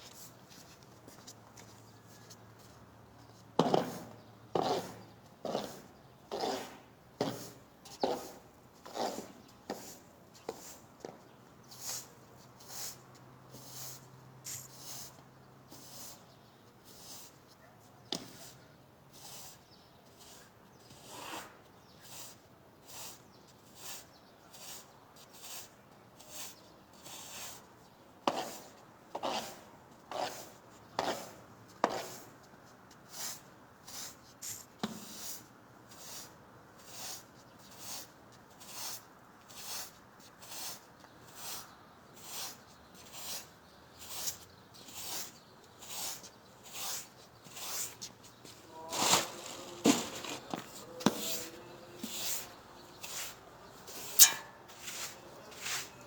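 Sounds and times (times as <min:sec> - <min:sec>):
short brushing strokes: 0:44.1 - 0:56.0.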